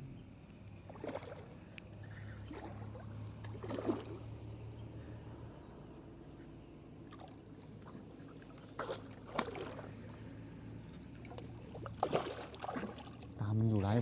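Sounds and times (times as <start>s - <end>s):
faint water around boat: 0.0s - 14.0s
short knocks or splashes: 8.5s - 9.9s, 11.2s - 14.0s.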